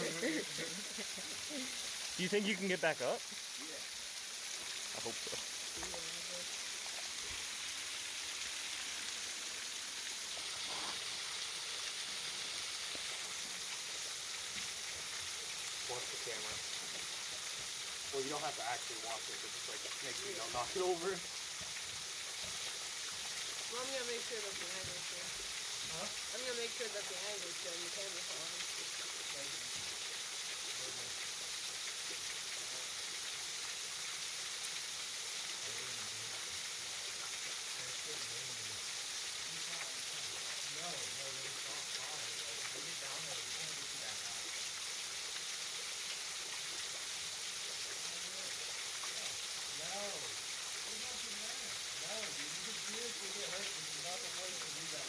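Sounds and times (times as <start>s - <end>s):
waterfall rushing: 0.0s - 3.8s, 18.1s - 21.2s
waterfall splashing: 0.0s - 55.0s.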